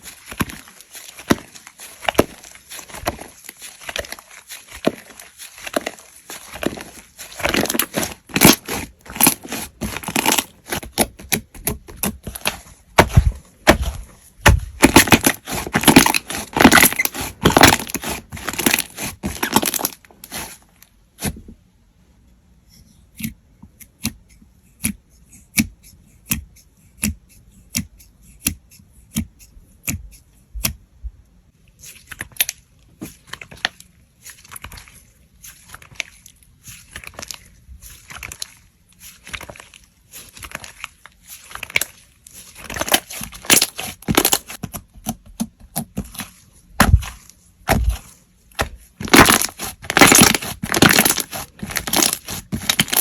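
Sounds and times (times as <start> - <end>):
slime crackling and popping: 0.0 - 20.6, 42.6 - 46.2, 46.8 - 53.0.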